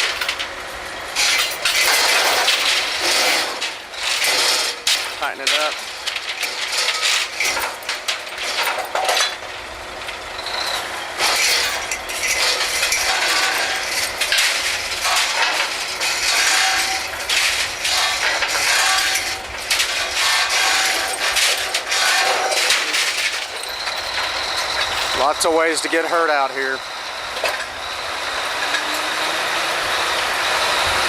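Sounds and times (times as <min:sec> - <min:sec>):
dense mechanical clatter: 0:00.0 - 0:29.1
metallic clicks and clanks: 0:01.2 - 0:09.4, 0:10.0 - 0:26.0.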